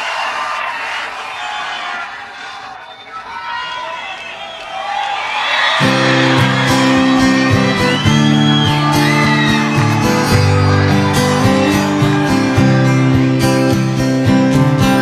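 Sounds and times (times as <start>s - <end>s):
audience whooping: 0.0s - 15.0s
guitar strumming chords: 5.8s - 15.0s.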